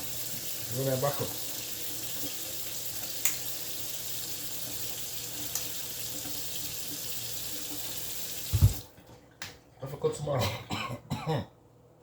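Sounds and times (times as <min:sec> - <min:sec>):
water running from a tap: 0:00.0 - 0:09.0.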